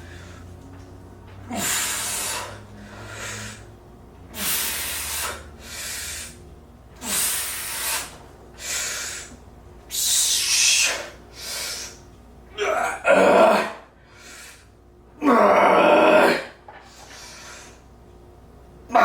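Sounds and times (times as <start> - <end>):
man breathing hard: 1.5 - 6.4, 7.0 - 12.0, 13.9 - 14.8, 16.8 - 17.8.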